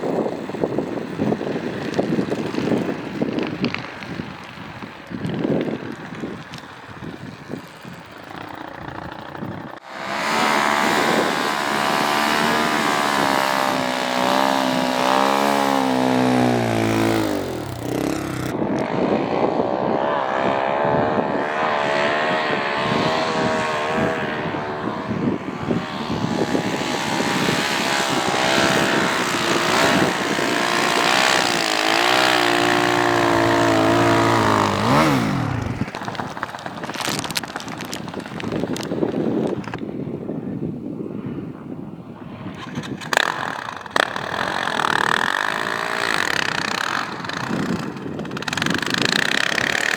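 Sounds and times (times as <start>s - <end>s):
snowbike engine running hard: 0.0s - 40.7s, 41.3s - 49.9s.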